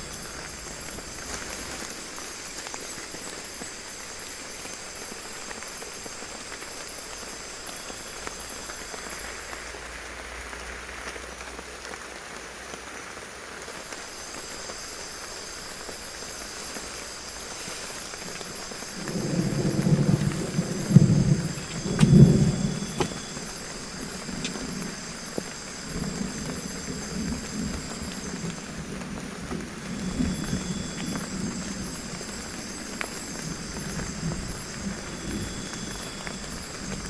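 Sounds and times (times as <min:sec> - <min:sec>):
heavy rain falling: 0:10.9 - 0:37.0
low rumble of thunder: 0:18.2 - 0:31.9.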